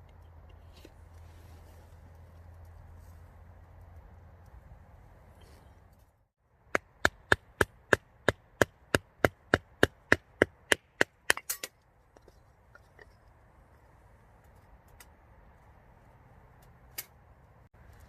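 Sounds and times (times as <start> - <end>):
axe chopping wood: 6.6 - 11.6.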